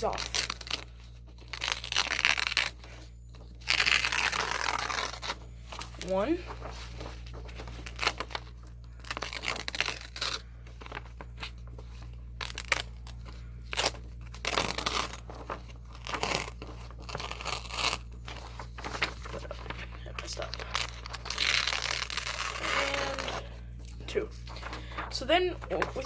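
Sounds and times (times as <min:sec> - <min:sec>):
paper tearing by hand: 0:00.0 - 0:03.0, 0:03.6 - 0:05.4, 0:09.0 - 0:11.0, 0:12.4 - 0:23.5
paper crinkling: 0:00.0 - 0:26.0.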